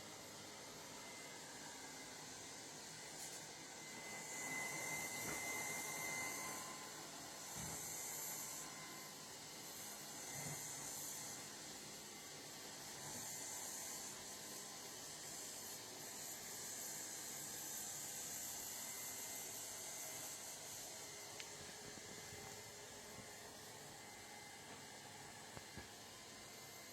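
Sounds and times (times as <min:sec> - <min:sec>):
robot vacuum cleaner whirring: 0:00.3 - 0:26.9.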